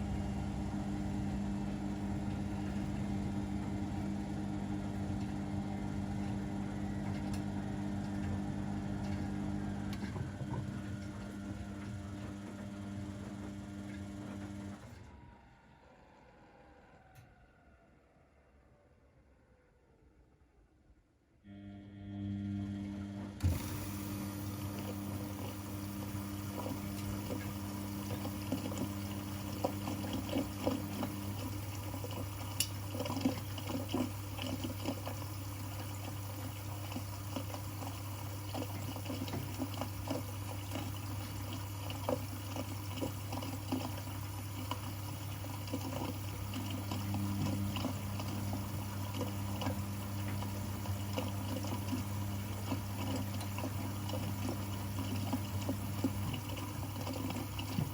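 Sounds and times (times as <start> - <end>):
washing machine sloshing water: 23.4 - 57.9.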